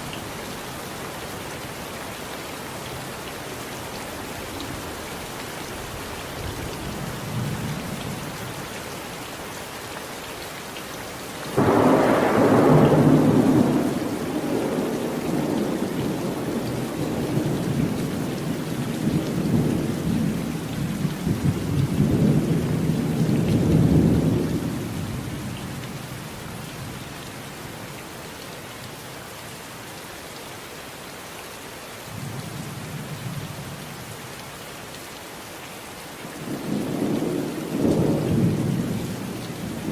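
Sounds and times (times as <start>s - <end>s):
steady rain falling: 0.0s - 39.9s
thunder rumbling: 11.5s - 25.0s, 36.5s - 39.9s.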